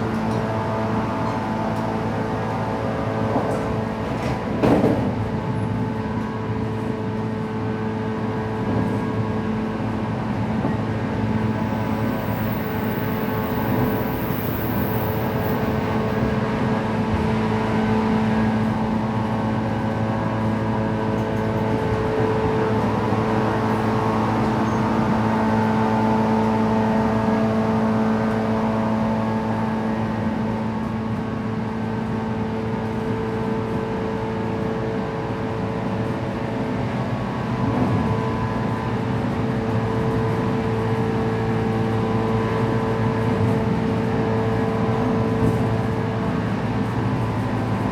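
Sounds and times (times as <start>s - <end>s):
train motors humming: 0.0s - 32.2s
wheels rumbling on rails: 0.0s - 47.9s.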